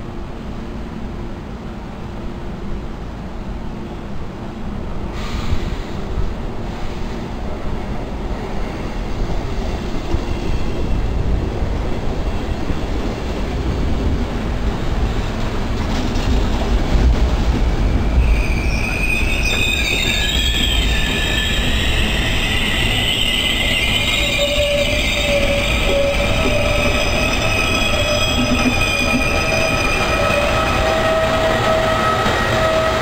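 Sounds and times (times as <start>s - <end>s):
train wheels rumbling on rails: 0.0s - 33.0s
high squealing brakes: 17.8s - 33.0s.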